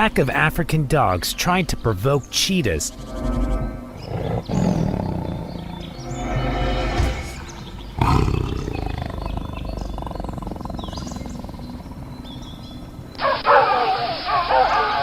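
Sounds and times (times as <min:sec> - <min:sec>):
wild dogs twittering and yipping: 0:02.9 - 0:15.0
big cat growling: 0:04.0 - 0:13.1.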